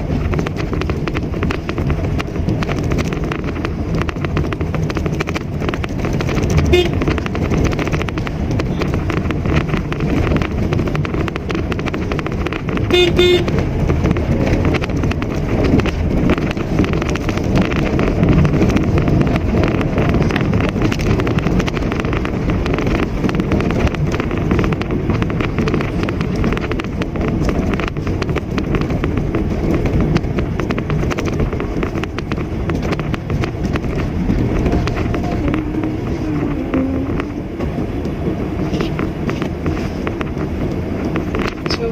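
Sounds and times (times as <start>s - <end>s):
car driving: 0.0s - 41.9s
car horn toot: 6.6s - 7.1s, 12.8s - 13.6s.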